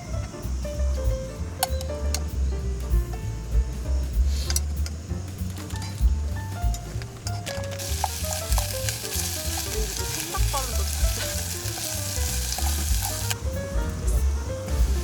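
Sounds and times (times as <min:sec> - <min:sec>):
background music: 0:00.0 - 0:15.0
food sizzling in a frying pan: 0:07.5 - 0:13.5, 0:14.7 - 0:15.0.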